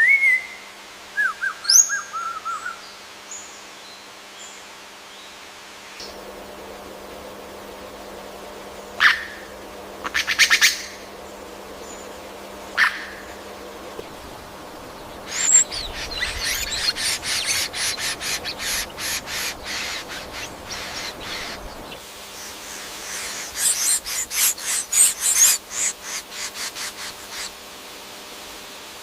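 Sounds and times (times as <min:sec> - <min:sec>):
bird harsh rasping call: 0:14.0 - 0:27.5.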